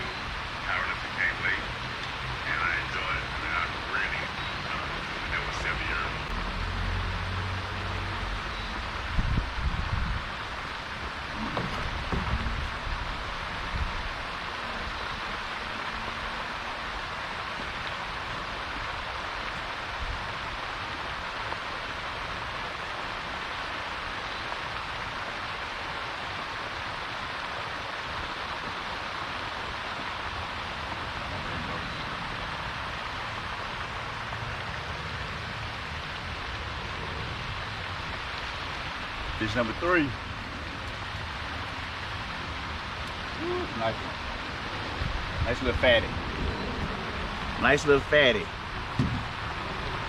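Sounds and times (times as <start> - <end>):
fountain spray splashing on water: 0.0 - 50.0
low knocks: 11.4 - 12.7, 48.9 - 49.3.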